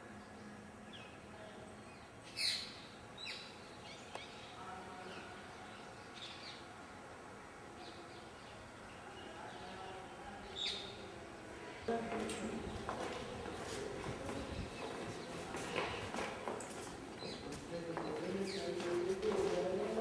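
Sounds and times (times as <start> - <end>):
steady background hiss: 0.0 - 20.0
birds chirping: 7.8 - 15.9, 17.2 - 19.8.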